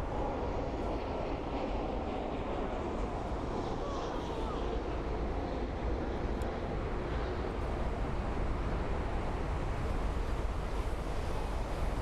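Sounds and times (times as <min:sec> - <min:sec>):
wind rushing on microphone: 0:00.0 - 0:12.0.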